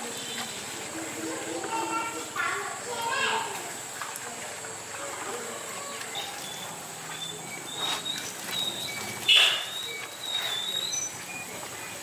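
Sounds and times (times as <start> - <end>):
small birds chirping: 5.9 - 12.0.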